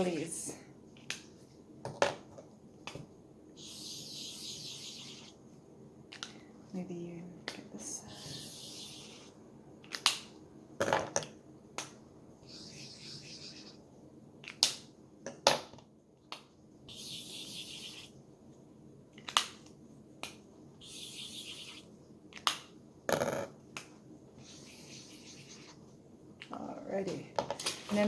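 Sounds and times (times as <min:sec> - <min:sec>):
markers scratching on paper: 0:03.6 - 0:05.4, 0:08.1 - 0:09.4, 0:12.4 - 0:13.8, 0:16.9 - 0:18.1, 0:20.8 - 0:21.9, 0:24.4 - 0:25.8.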